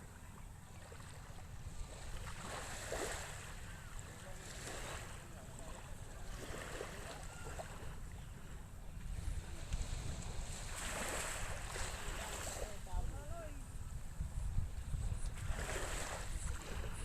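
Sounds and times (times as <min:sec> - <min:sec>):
small waves washing in: 0:00.0 - 0:17.0
wind rumble on microphone: 0:04.5 - 0:17.0.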